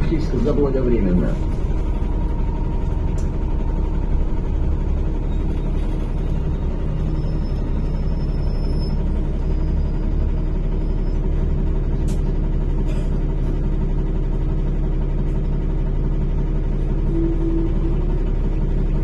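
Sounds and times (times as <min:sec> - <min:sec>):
road noise: 0:00.0 - 0:10.0
bus engine rumble: 0:00.0 - 0:19.0.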